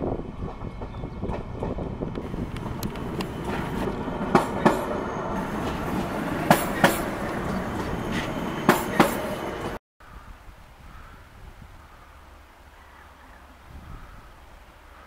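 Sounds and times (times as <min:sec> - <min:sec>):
train rumbling past: 0:00.0 - 0:09.8
wheels clacking over rail joint: 0:00.4 - 0:09.8.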